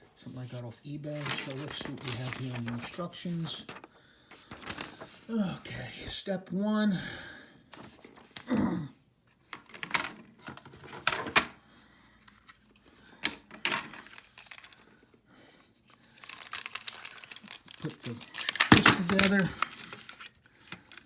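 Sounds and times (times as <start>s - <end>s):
plastic parts clicking and knocking: 9.5s - 11.6s, 13.2s - 14.8s, 16.2s - 21.0s.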